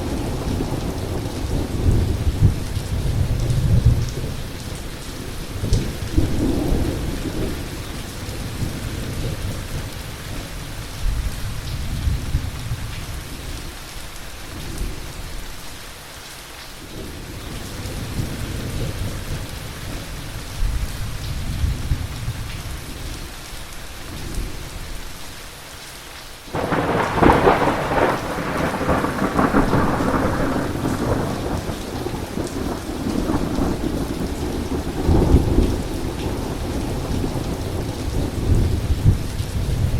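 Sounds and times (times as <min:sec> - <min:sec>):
rain hissing: 0:22.4 - 0:39.9
loud thunderclap: 0:26.5 - 0:39.9
thunder rumbling: 0:26.5 - 0:39.9.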